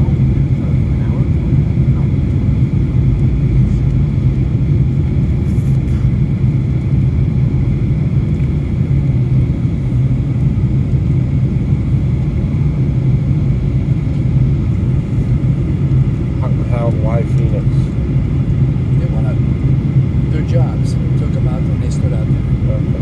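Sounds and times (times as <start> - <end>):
airplane cabin engine rumble: 0.0 - 23.0.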